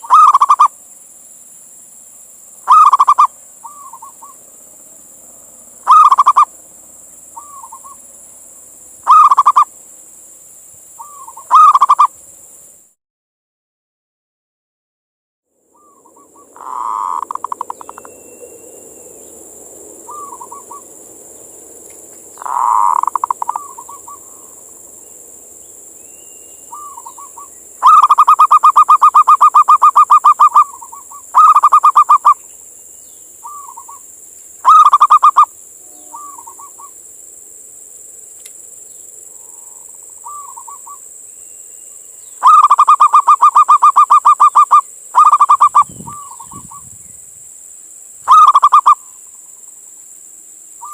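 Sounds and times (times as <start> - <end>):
dove rattling coos: 0.0 - 0.7, 2.7 - 4.4, 5.8 - 6.5, 9.1 - 9.7, 16.6 - 18.0, 22.4 - 24.4, 26.7 - 32.4, 34.6 - 35.5, 42.4 - 46.4, 48.3 - 49.0.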